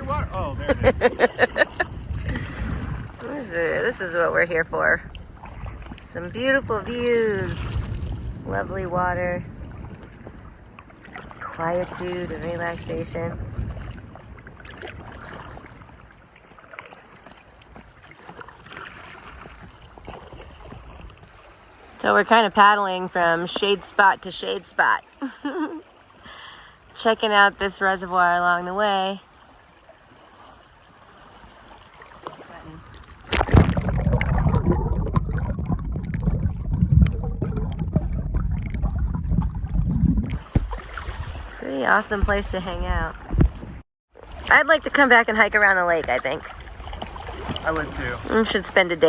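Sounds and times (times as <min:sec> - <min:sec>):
steady low rumble: 0:00.0 - 0:10.8, 0:33.2 - 0:43.8
paddle strokes in water: 0:00.0 - 0:49.0
small splashes and drips: 0:05.0 - 0:06.2, 0:13.6 - 0:22.0, 0:29.4 - 0:39.0, 0:46.4 - 0:48.3.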